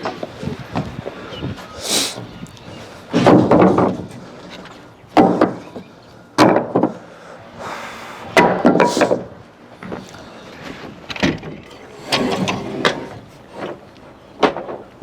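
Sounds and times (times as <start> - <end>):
short hiss: 1.8 - 2.2
heavy wooden thuds: 5.2 - 7.0.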